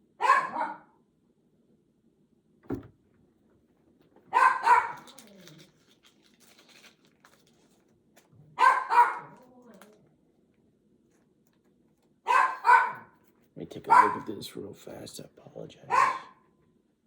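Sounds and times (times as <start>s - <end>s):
dog barking indoors: 0.0s - 1.1s, 4.2s - 5.6s, 8.4s - 9.9s, 12.2s - 14.4s, 15.9s - 16.6s
short low thump: 2.6s - 3.0s.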